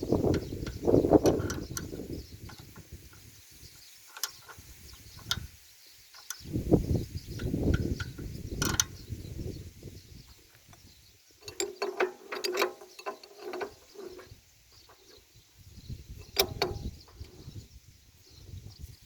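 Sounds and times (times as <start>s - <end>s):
metal tools clinking on engine: 11.4s - 15.2s, 16.2s - 16.9s.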